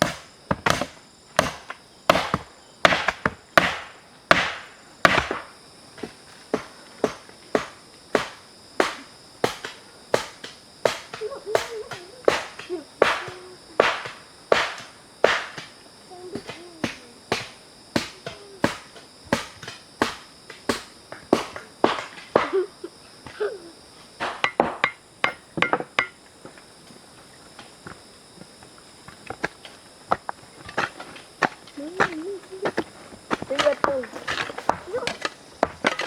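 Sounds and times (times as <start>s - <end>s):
wood being chopped: 0.0s - 22.6s, 24.2s - 26.2s, 30.1s - 36.0s.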